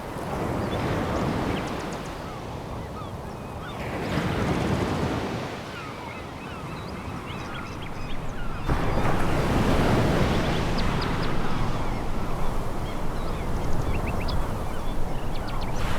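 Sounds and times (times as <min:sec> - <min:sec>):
waves washing onto pebble beach: 0:08.7 - 0:15.9.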